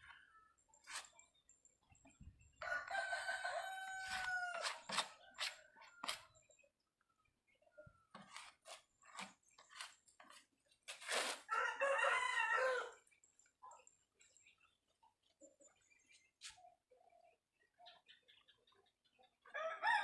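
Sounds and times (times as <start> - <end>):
rooster crowing: 2.6 - 4.9, 11.5 - 13.0, 19.6 - 20.0.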